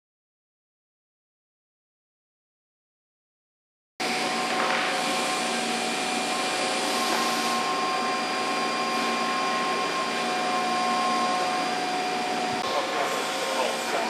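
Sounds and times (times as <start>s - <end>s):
whirring motor with whining tones: 4.0s - 14.0s.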